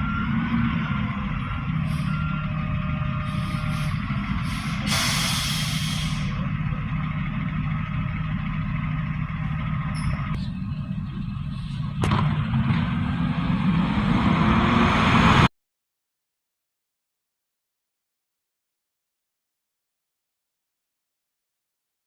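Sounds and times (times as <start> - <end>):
reversing beeps: 0.0 - 4.1
garbage truck diesel engine: 0.0 - 15.5
air brake hiss: 3.3 - 6.4.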